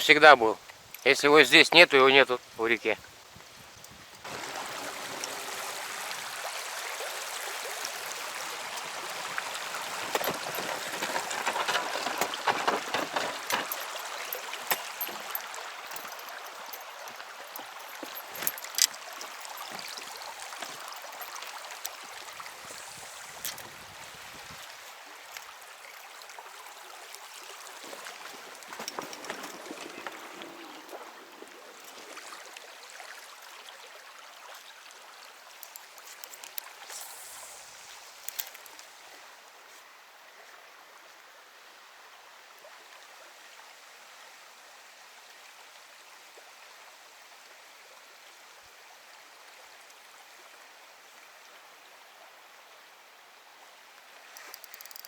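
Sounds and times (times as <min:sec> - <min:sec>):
river water gurgling: 0:04.2 - 0:43.7, 0:44.9 - 0:55.0
sharp clicks: 0:54.4 - 0:55.0.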